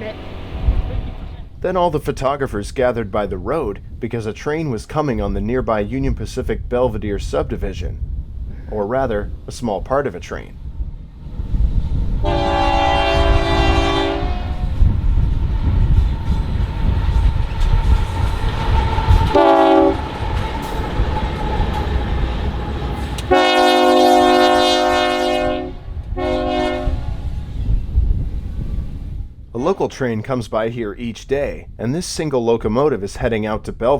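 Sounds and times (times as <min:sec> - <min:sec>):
locomotive engine rumble: 0:00.0 - 0:30.4
locomotive horn blasts: 0:12.2 - 0:14.8, 0:19.2 - 0:20.1, 0:23.2 - 0:27.2.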